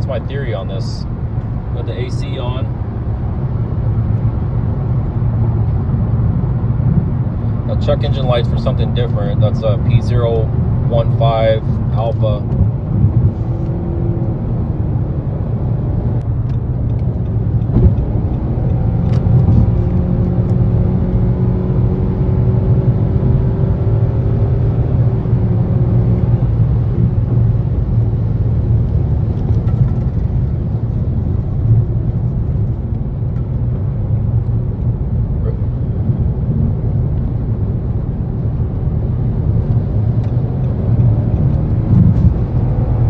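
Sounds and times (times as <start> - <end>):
car engine and road rumble: 0.0 - 43.0.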